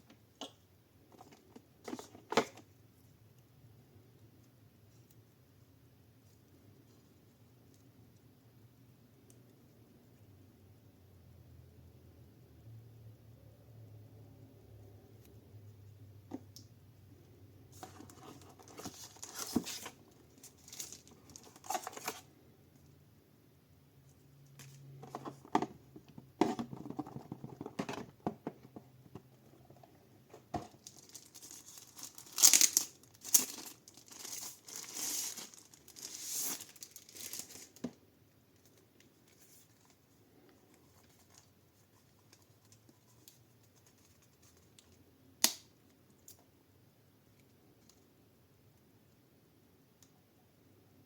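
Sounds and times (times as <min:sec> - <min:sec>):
packaging crinkling and tearing: 0:18.0 - 0:22.2, 0:30.7 - 0:37.8.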